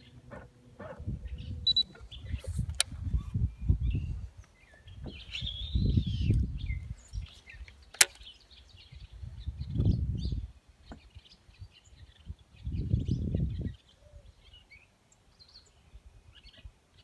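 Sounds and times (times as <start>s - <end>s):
songbirds chirping: 0.0s - 17.0s
wind gusts on microphone: 0.2s - 7.7s, 8.7s - 13.8s
sharp clicks: 1.6s - 3.0s, 7.2s - 8.3s.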